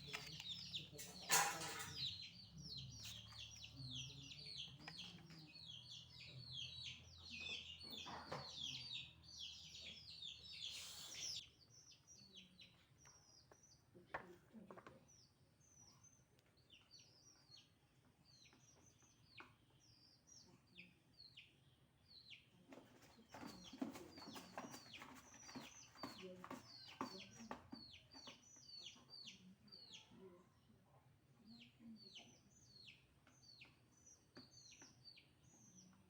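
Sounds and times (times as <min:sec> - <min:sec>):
brief rustling: 0:00.0 - 0:01.9
small birds chirping: 0:00.0 - 0:36.0.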